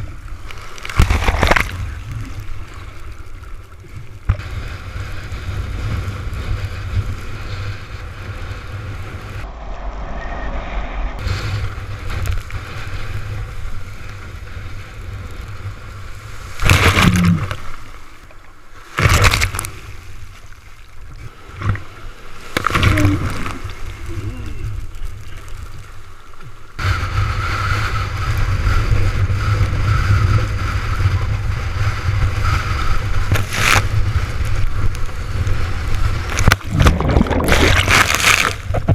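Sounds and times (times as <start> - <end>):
sea water rushing and splashing: 0.0 - 38.9
wind buffeting microphone: 4.0 - 17.6, 26.8 - 38.9
loud sudden splashes: 36.6 - 38.6.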